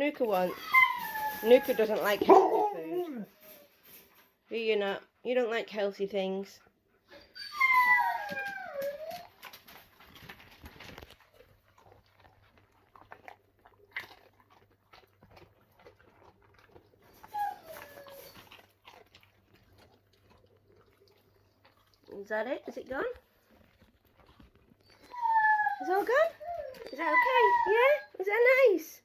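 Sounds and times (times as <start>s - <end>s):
dog howling whine: 0.6s - 2.2s, 7.3s - 9.4s, 17.2s - 18.5s, 24.8s - 28.2s
dog chewing a treat: 8.4s - 27.9s.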